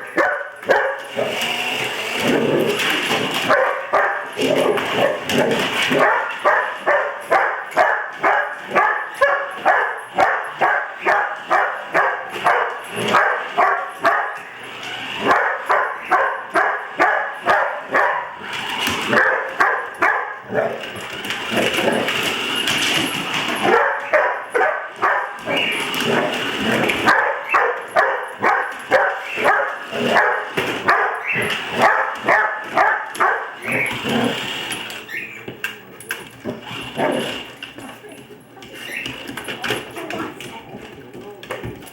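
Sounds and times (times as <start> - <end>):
dog barking rapidly: 0.0 - 1.3, 3.5 - 14.5, 15.2 - 18.4, 19.1 - 20.8, 23.7 - 25.8, 27.0 - 34.0
dog whining: 23.6 - 35.6.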